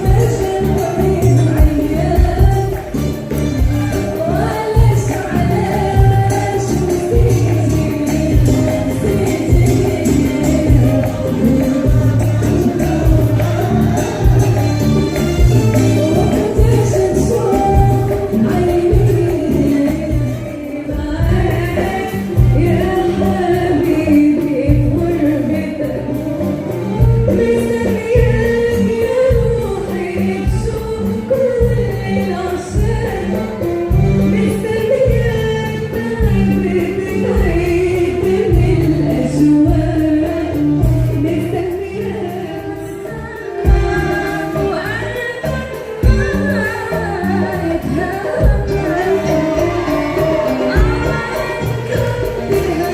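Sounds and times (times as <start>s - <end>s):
instrumental accompaniment: 0.0s - 52.9s
choir singing: 7.1s - 17.9s, 47.9s - 52.9s.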